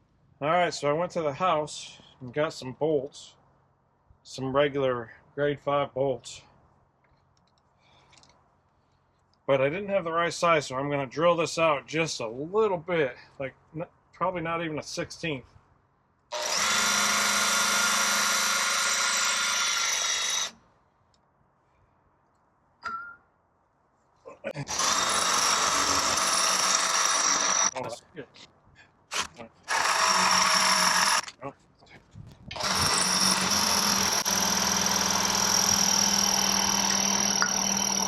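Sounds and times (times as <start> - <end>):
power drill drilling: 16.3 - 20.6, 24.7 - 27.9, 29.1 - 31.3, 32.5 - 38.0.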